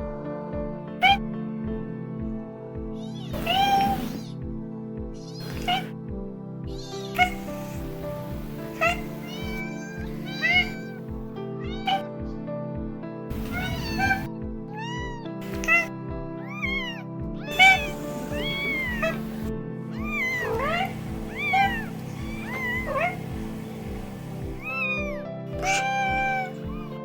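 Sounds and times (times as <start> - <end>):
background music with steady beat: 0.0 - 27.0
cats meowing: 1.0 - 1.2, 3.0 - 4.3, 5.3 - 6.0, 6.7 - 12.1, 13.3 - 27.0.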